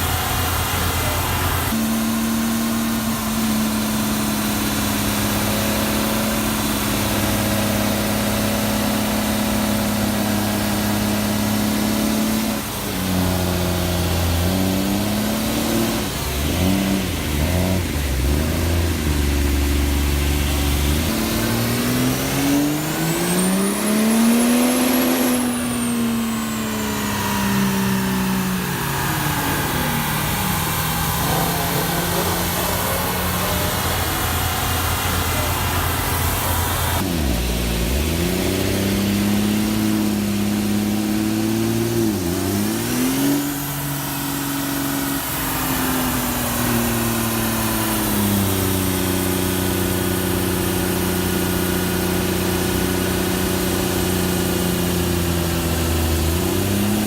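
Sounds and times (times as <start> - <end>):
car engine revving: 0.0 - 57.0
high whine: 15.7 - 54.6.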